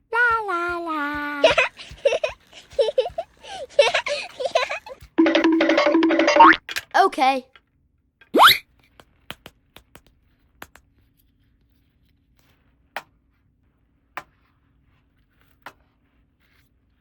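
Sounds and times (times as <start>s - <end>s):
toy pieces clicking and tapping: 0.2s - 7.7s.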